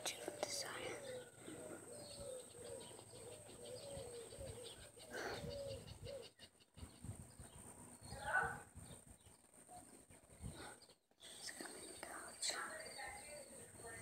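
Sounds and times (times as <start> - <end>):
bird calling faintly: 0.0 - 7.2.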